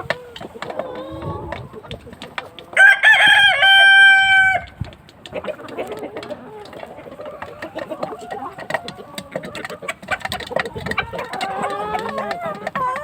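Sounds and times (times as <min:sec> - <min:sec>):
chickens clucking: 0:00.0 - 0:13.0
rooster crowing: 0:02.8 - 0:04.7.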